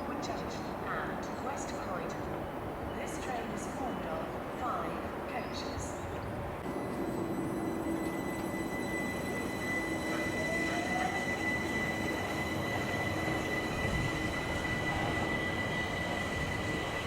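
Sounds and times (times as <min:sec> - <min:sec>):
electric train rumble and whine: 0:00.0 - 0:17.0.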